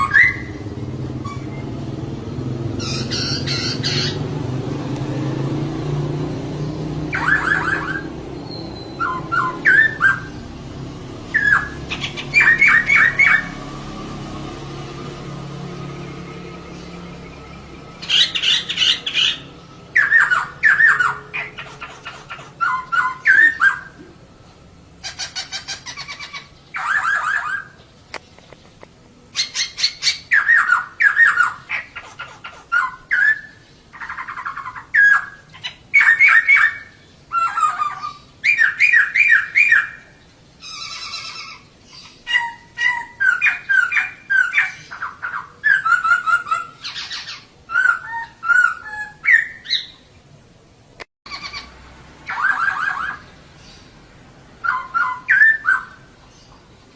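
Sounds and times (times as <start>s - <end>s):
laughingthrush chattering calls: 2.6s - 4.5s, 6.6s - 10.5s, 11.2s - 13.6s, 16.7s - 24.0s, 25.0s - 27.9s, 29.3s - 50.0s, 51.3s - 53.9s, 54.6s - 56.9s.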